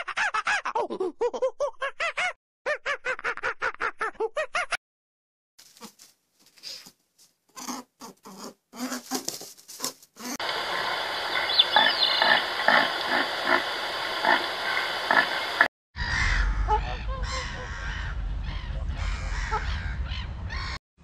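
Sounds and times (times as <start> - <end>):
outdoor hiss: 10.4 - 15.7.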